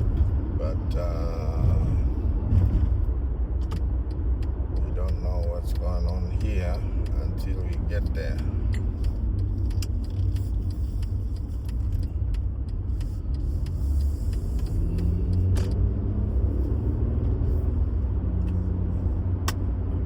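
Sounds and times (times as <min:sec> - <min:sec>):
car driving on highway rumble: 0:00.0 - 0:20.0.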